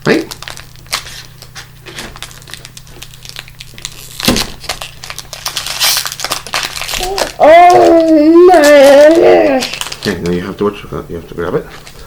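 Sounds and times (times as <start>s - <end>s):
wrapper crinkling and tearing: 0.0s - 10.8s.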